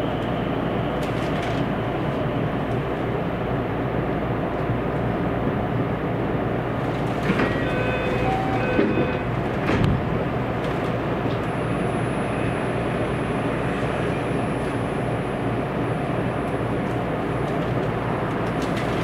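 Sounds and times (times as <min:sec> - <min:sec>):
train wheels rumbling on rail: 0:00.0 - 0:19.0
ringing tones: 0:07.5 - 0:09.3.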